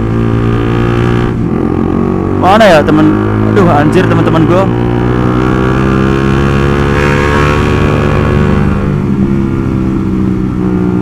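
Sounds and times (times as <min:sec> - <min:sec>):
motorcycle engine cruising: 0:00.0 - 0:11.0.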